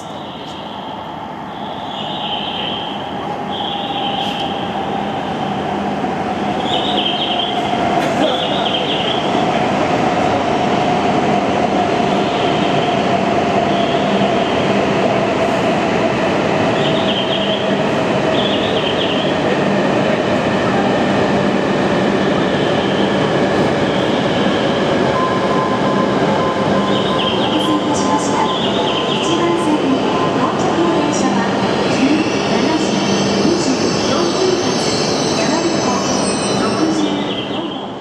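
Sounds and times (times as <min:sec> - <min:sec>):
train braking whine: 0:00.0 - 0:09.3
train rumbling: 0:00.0 - 0:38.0.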